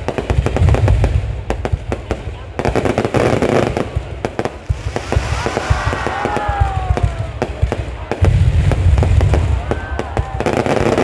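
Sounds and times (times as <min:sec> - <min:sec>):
firework bangs and crackles: 0:00.0 - 0:11.0
deep booms of bursting shells: 0:04.6 - 0:07.8.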